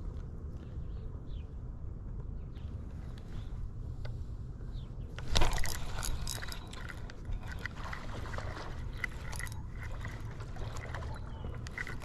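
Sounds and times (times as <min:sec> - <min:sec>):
fish splashing in water: 0:05.3 - 0:12.0.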